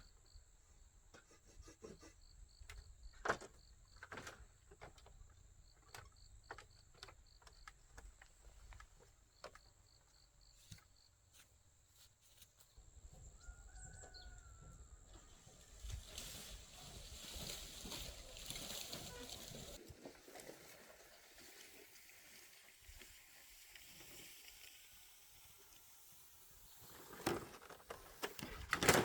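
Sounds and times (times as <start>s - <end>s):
insects chirping: 0.0s - 19.8s.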